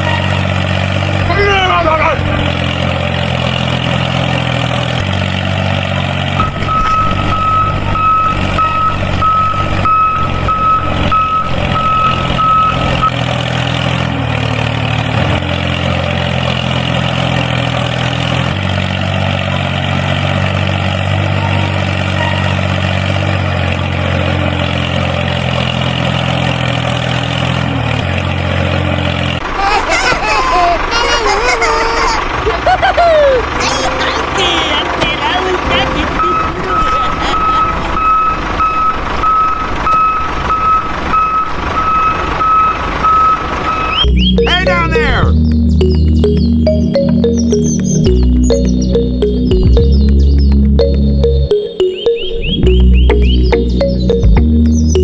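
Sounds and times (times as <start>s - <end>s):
tractor engine running: 0.0s - 29.7s, 32.0s - 55.0s
high beeping tone: 6.4s - 13.1s, 35.7s - 39.5s, 43.1s - 55.0s.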